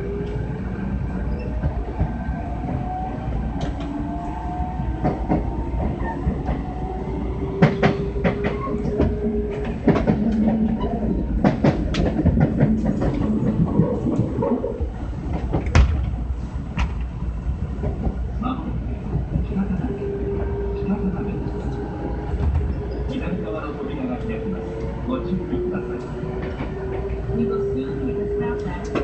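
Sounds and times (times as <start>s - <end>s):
train rumbling: 0.0s - 29.0s.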